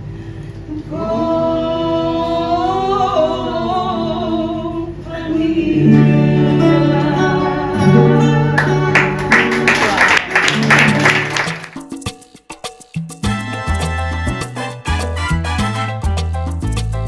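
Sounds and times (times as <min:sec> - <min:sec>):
person singing a long note: 0:00.9 - 0:09.8
guitars playing: 0:05.8 - 0:11.8.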